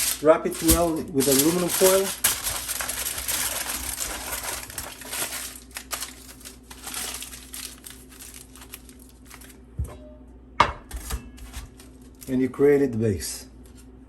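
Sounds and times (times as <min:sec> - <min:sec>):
aluminum foil crinkling: 0:00.0 - 0:09.6, 0:11.4 - 0:12.4.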